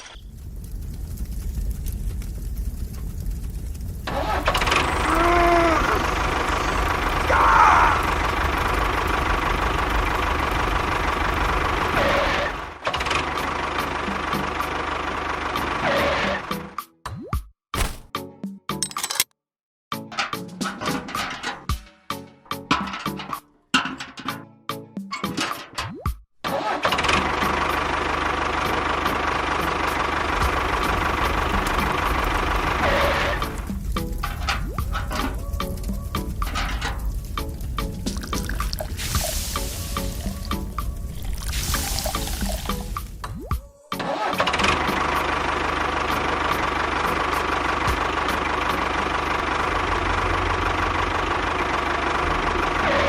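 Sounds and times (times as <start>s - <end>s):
small tractor engine running: 0.0s - 16.7s, 26.5s - 43.2s, 44.1s - 53.0s
background music: 19.9s - 26.7s, 29.2s - 45.4s.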